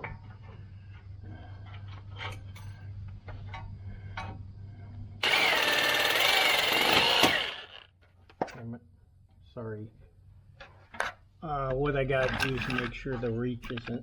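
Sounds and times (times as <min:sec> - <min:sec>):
power tool cutting metal: 0:05.2 - 0:07.8.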